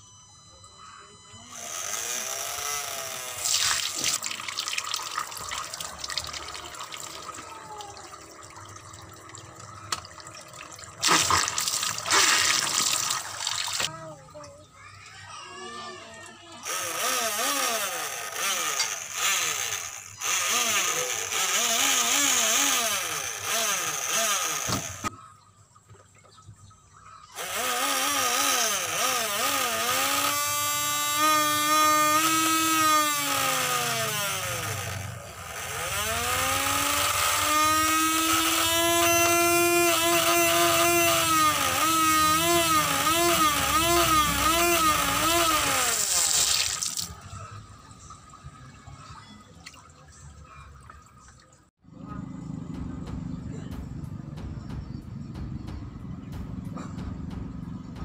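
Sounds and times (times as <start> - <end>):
electric motor whining under water: 0.0 - 14.6, 15.3 - 25.1, 27.3 - 48.1.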